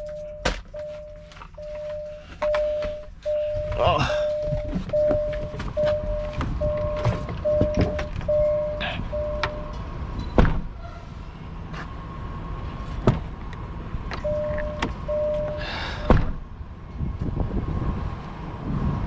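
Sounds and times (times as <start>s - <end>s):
electronic beeps: 0.0s - 9.8s, 14.2s - 15.6s
truck engine idling: 0.0s - 16.2s.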